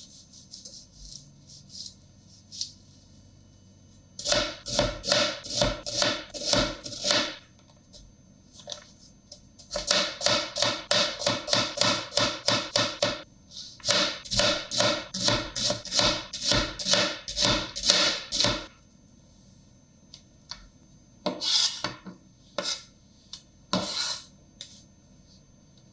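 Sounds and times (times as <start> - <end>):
rhythmic kitchen chopping strikes: 4.2 - 7.4, 9.6 - 13.2, 13.8 - 18.7.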